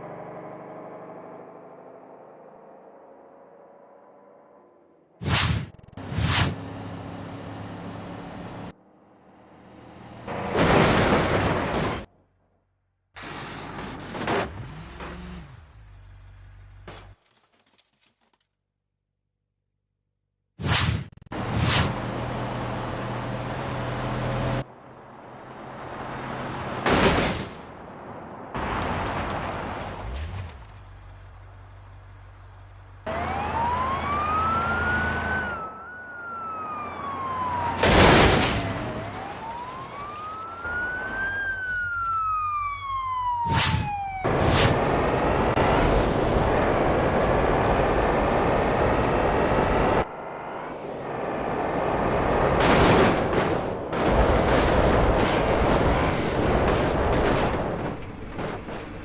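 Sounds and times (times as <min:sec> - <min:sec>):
wailing siren: 0:33.1 - 0:52.0.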